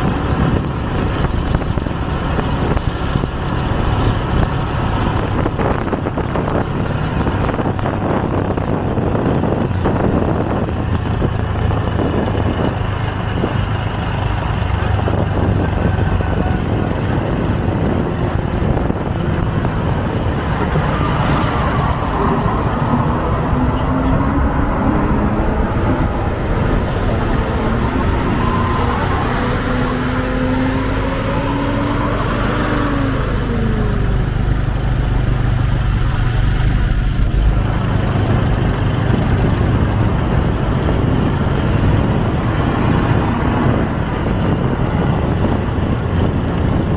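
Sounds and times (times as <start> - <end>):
road noise: 0.0 - 46.9
wind rushing: 14.9 - 46.9.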